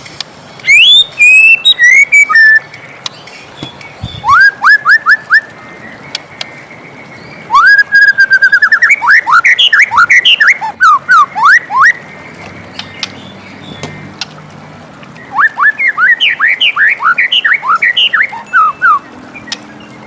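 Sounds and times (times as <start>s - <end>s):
bird whistling song: 0.6s - 6.2s, 7.1s - 12.1s, 15.2s - 20.0s.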